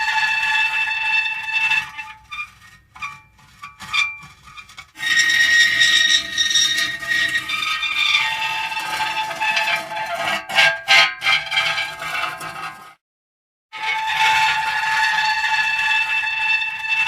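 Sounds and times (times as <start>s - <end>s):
short metal squeaks: 1.7s - 12.8s.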